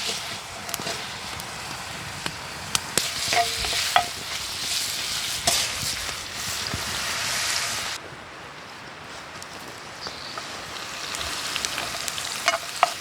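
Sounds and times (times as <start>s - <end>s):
utensil scraping a pan: 0.0s - 7.8s, 11.7s - 13.0s
food sizzling in a hot pan: 0.0s - 8.0s, 10.0s - 13.0s.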